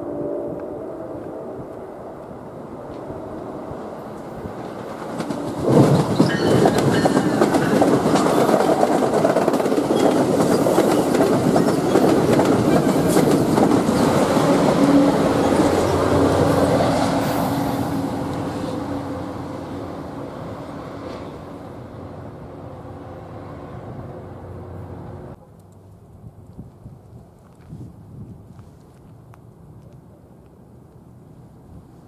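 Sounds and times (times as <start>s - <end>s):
train rumbling past: 0.0s - 25.4s
locomotive hum: 0.0s - 25.7s
wheels clacking over rails: 4.1s - 17.2s.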